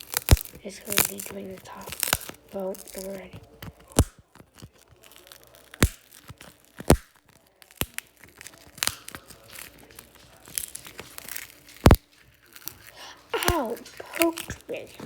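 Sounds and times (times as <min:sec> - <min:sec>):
glass screen protector snapping: 0:00.0 - 0:09.7
faint glass crackling: 0:00.0 - 0:15.0.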